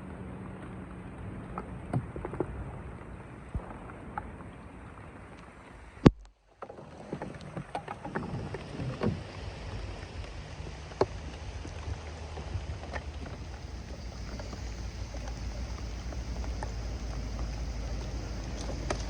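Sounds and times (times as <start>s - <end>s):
water splashing: 3.6s - 19.0s
steady low rumble: 9.2s - 19.0s.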